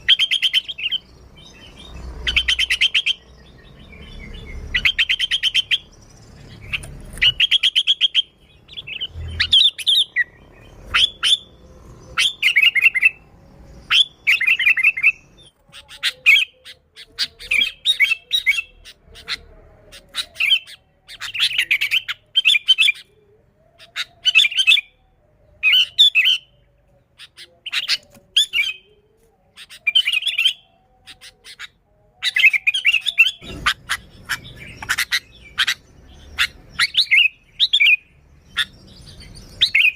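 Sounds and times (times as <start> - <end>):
bird chattering calls: 32.3 - 38.9.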